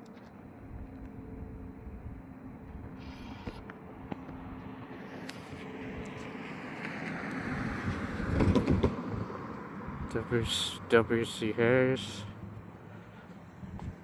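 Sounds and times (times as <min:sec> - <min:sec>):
steady low hum: 0:00.3 - 0:06.3
vehicle passing by: 0:05.5 - 0:14.0.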